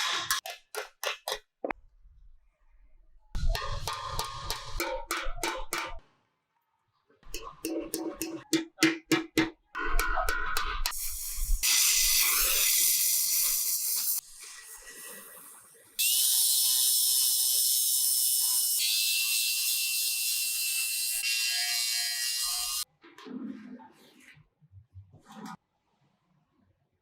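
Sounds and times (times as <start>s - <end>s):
power tool cutting metal: 16.0s - 22.8s.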